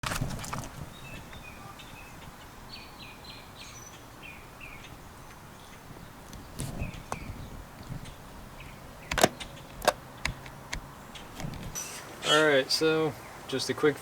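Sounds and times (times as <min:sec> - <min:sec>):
bird chirping: 0:00.8 - 0:13.8.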